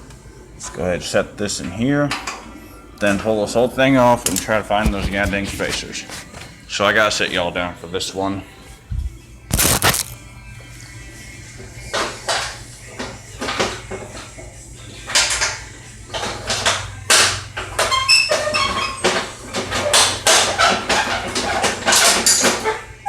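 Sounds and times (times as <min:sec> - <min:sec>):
metal parts clanking and rattling: 0:15.1 - 0:22.8.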